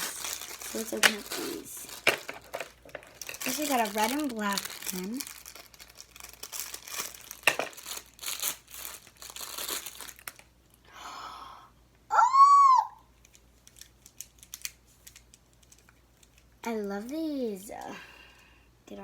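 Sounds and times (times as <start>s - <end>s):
plastic packaging crinkling and tearing: 0.0s - 10.6s, 13.2s - 16.5s.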